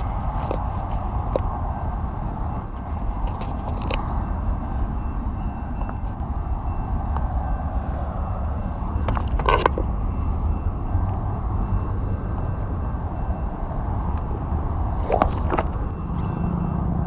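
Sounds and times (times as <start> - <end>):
tyre noise on pavement: 0.0 - 5.0, 13.5 - 17.0.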